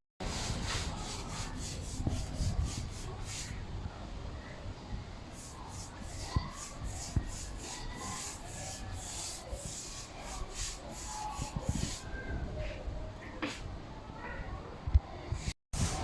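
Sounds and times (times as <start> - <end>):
cloth rubbing on stone floor: 0.2 - 3.6, 5.4 - 12.1.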